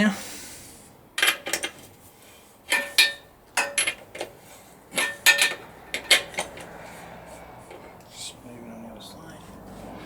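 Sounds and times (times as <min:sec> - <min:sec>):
spanner clinking on bolts: 0:01.2 - 0:01.8, 0:02.7 - 0:06.8.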